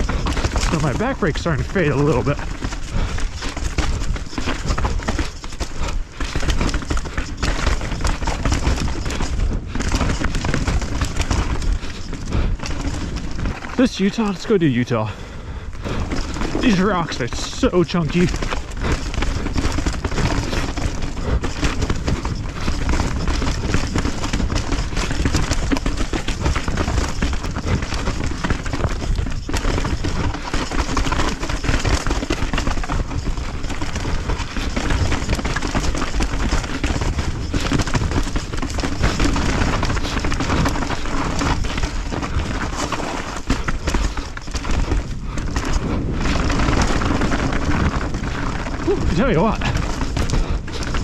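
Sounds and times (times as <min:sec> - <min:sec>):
bike clattering over rocks: 0:00.0 - 0:51.0
wind buffeting microphone: 0:33.1 - 0:51.0.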